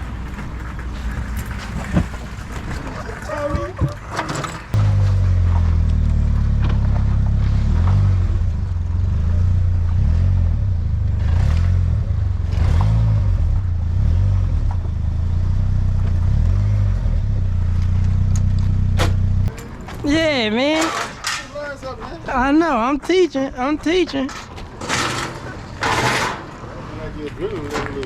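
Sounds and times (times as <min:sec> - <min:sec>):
vehicle engine droning: 0:00.0 - 0:20.0.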